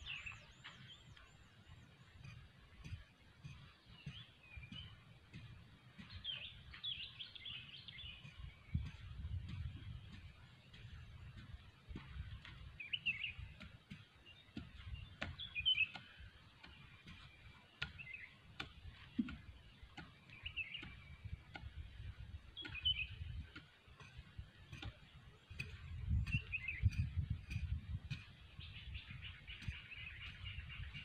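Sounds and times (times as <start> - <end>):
wind rumble on microphone: 0.0 - 13.9, 20.4 - 31.0
small birds chirping: 0.0 - 31.0.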